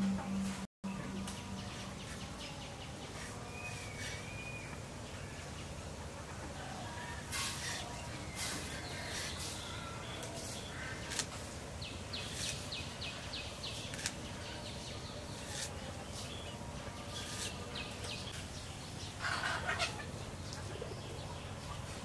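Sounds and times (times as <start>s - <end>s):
low background noise: 0.0s - 22.0s
birds calling: 0.9s - 22.0s
chicken clucking: 19.2s - 22.0s.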